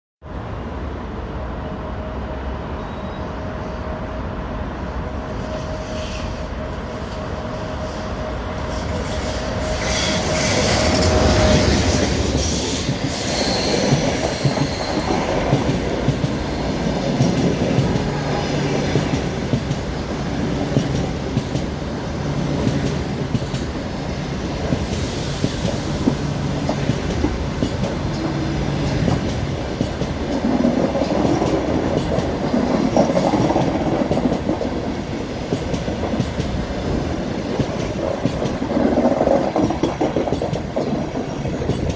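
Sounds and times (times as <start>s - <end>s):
electric locomotive passing: 0.3s - 41.9s
train wheels clattering over rail joints: 8.7s - 41.9s.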